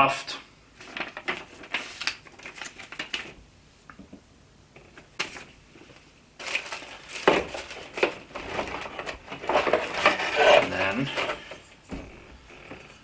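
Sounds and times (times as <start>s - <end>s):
plastic packaging crinkling: 0.7s - 3.4s, 4.9s - 11.7s.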